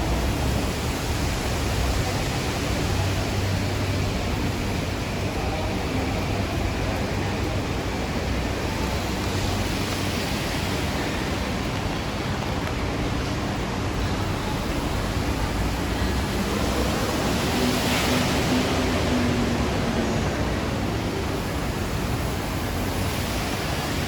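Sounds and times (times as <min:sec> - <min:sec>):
city traffic rumble: 0:00.0 - 0:24.0
rain falling: 0:00.0 - 0:24.0.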